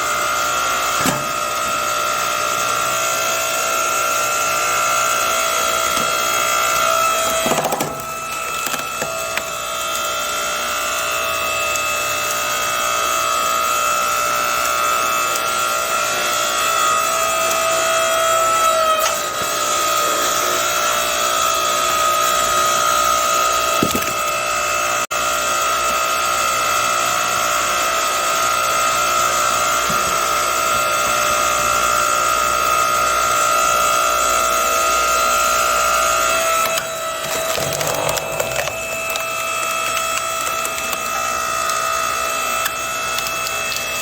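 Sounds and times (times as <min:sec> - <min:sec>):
log splitter whine: 0:00.0 - 0:44.0
wood cracking: 0:05.8 - 0:09.6, 0:23.8 - 0:24.3, 0:36.6 - 0:44.0.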